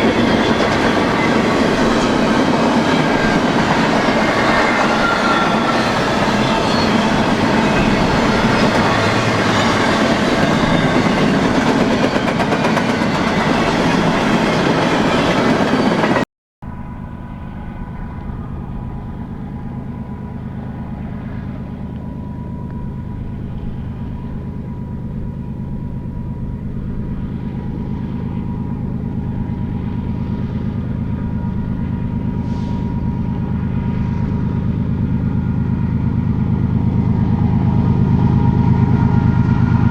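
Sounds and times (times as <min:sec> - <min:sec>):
train wheels clattering on rails: 0:00.0 - 0:16.2
diesel locomotive hum: 0:00.0 - 0:39.9.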